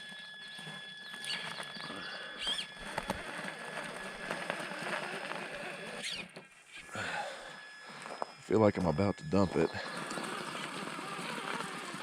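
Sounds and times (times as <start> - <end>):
small gravel clicks: 0.1 - 6.4, 9.9 - 12.0
tyres scrabbling in gravel: 0.1 - 6.6, 9.7 - 12.0.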